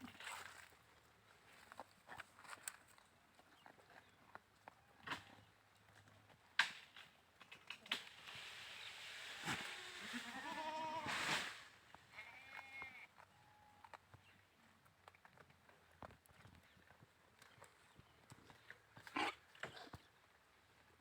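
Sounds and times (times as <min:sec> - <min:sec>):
rustling: 0:07.4 - 0:12.8
goats bleating: 0:09.7 - 0:11.1, 0:12.1 - 0:13.8.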